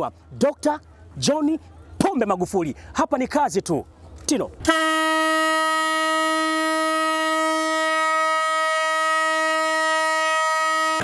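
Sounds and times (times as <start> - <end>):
train horn long blast: 4.6 - 11.0.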